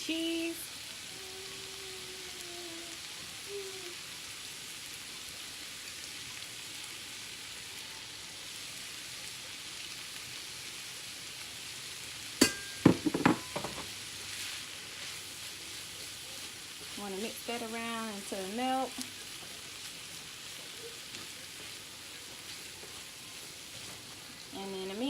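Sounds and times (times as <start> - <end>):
meat sizzling in a frying pan: 0.0 - 25.0
utensil knocking on pan: 12.4 - 13.9.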